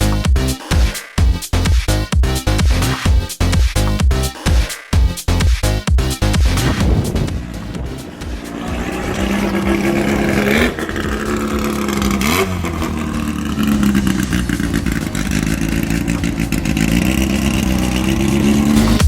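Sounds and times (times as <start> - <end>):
car engine under load: 6.6 - 19.0.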